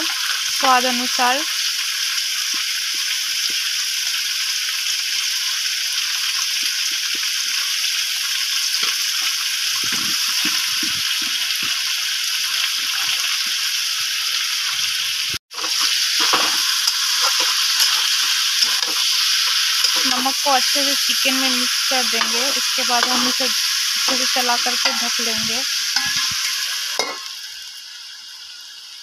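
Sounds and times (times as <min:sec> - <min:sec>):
chicken and onions sizzling in oil: 0:00.0 - 0:29.0
metal spatula stirring pan: 0:15.6 - 0:21.3, 0:22.1 - 0:27.3.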